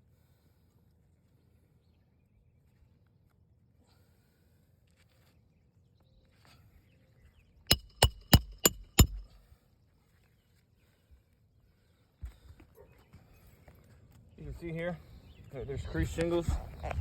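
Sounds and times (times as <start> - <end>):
hammer blows with metallic ring: 7.7 - 9.3.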